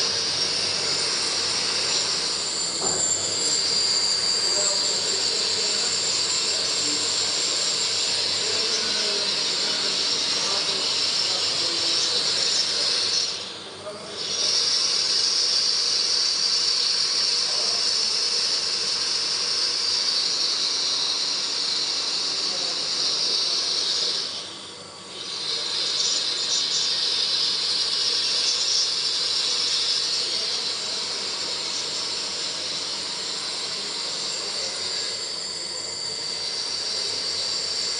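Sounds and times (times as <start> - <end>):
high-pitched hiss of sparking wire: 0.0 - 37.9.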